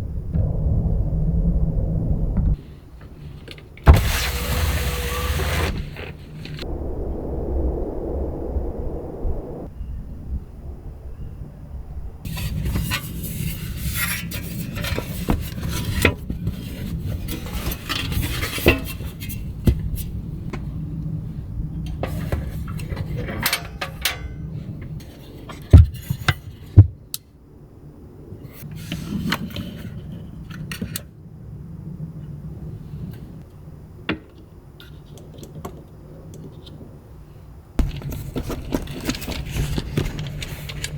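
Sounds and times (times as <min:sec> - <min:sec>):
steady low rumble: 0:00.0 - 0:03.3, 0:06.6 - 0:12.8
objects clinking and rustling: 0:37.8 - 0:40.9.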